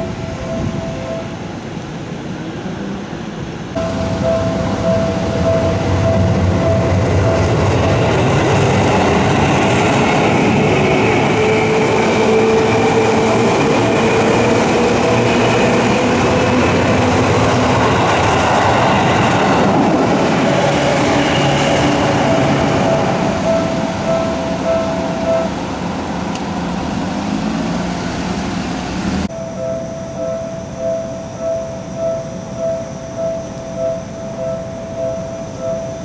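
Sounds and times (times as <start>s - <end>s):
level crossing warning bell: 0.0s - 2.2s, 3.8s - 36.0s
electric train rumbling: 0.0s - 36.0s
train motor whine: 3.8s - 36.0s.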